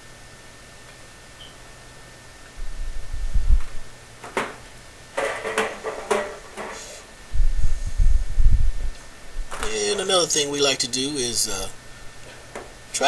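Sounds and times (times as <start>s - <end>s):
dull low thumps: 2.6s - 3.8s, 7.3s - 9.6s.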